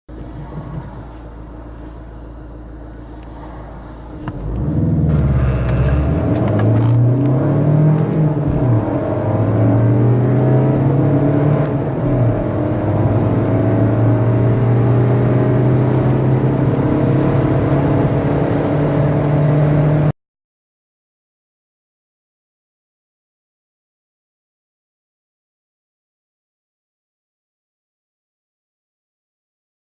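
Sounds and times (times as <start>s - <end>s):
car engine accelerating: 0.1s - 20.1s.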